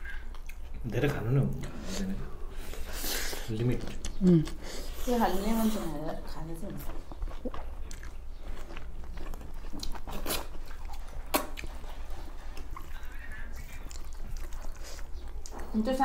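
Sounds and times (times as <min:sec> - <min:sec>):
people chewing and biting: 0:00.0 - 0:05.8, 0:06.8 - 0:16.0
sharp food crunches: 0:07.3 - 0:11.8.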